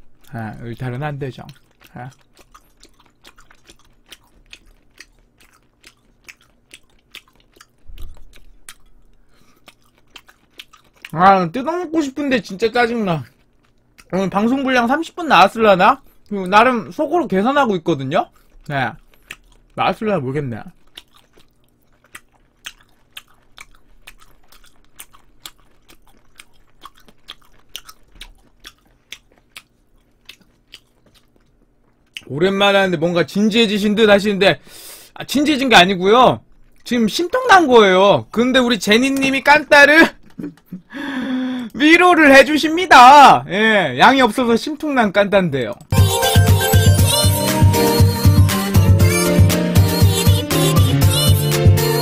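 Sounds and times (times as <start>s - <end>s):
person chewing food: 0.0s - 11.2s, 12.4s - 15.2s, 15.9s - 17.0s, 18.2s - 32.4s, 36.4s - 37.5s, 40.2s - 40.9s.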